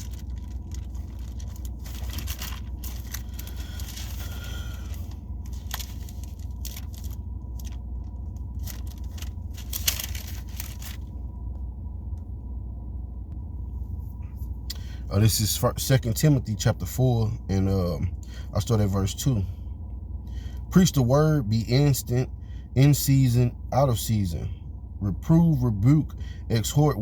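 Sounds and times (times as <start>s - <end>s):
pages rustling: 0.0s - 11.1s
low hum: 0.0s - 27.0s.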